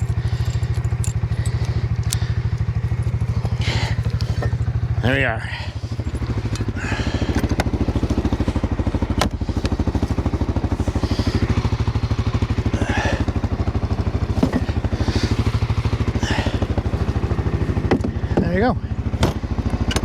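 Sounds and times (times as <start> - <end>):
light clicks: 0.0 - 4.6
engine idling: 0.0 - 20.0.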